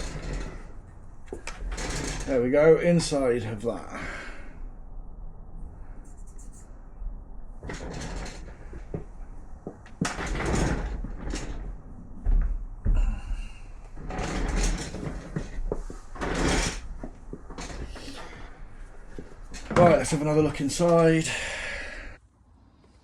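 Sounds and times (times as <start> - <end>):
metal parts scraping: 0.0 - 2.3, 7.6 - 11.8, 14.0 - 21.0
heavy thumps: 7.6 - 21.5.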